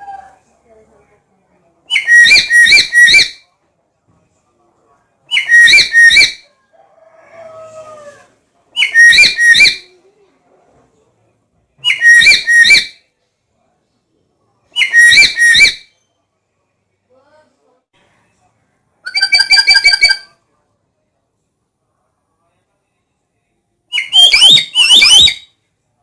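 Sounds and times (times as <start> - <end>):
parrot shrill double whistles: 1.9 - 3.4, 5.3 - 6.4, 8.8 - 9.8, 11.9 - 13.0, 14.8 - 16.0, 19.1 - 20.3, 24.0 - 25.5.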